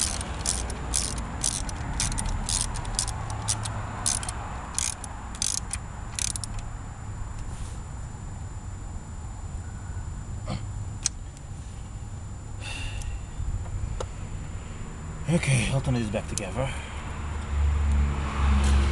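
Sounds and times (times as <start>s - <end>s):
ratchet wrench clicking: 0.0s - 6.7s
steady low hum: 0.0s - 18.2s.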